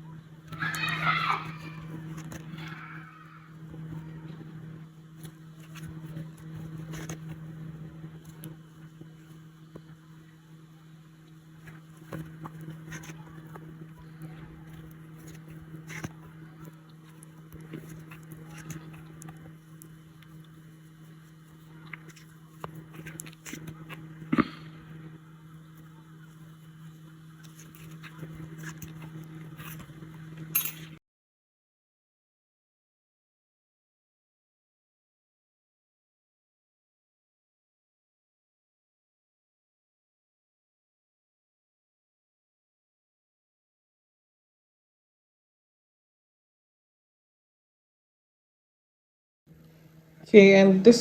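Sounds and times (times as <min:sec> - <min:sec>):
low room hum: 0:00.0 - 0:31.0, 0:49.5 - 0:51.0.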